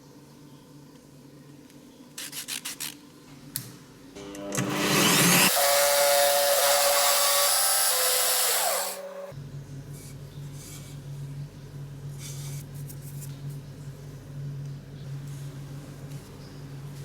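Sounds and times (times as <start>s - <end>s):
power sander on wood: 4.5s - 9.3s.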